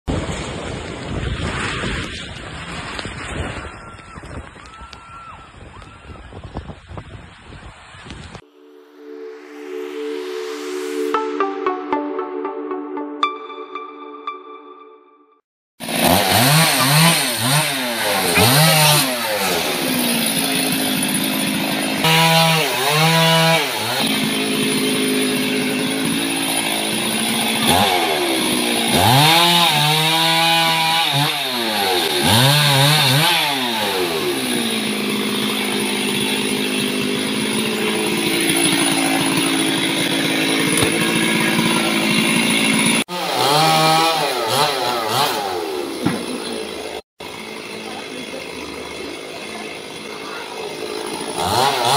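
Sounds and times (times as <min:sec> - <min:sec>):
strong wind: 0:00.1 - 0:08.4.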